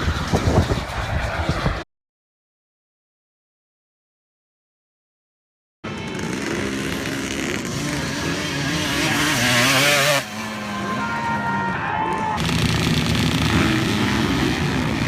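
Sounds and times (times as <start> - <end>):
dirt bike engines revving: 5.8 - 15.0.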